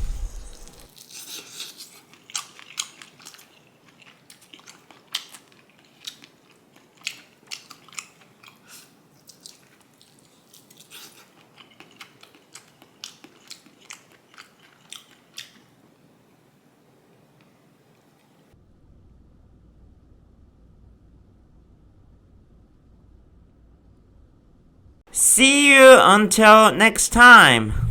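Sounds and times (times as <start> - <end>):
crunching and chewing: 0.9 - 15.9.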